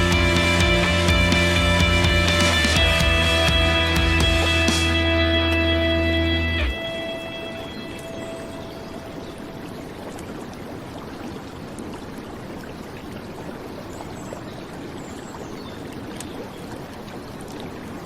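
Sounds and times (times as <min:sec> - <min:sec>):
river flowing: 0:00.0 - 0:18.0
rain falling on water: 0:04.3 - 0:18.0.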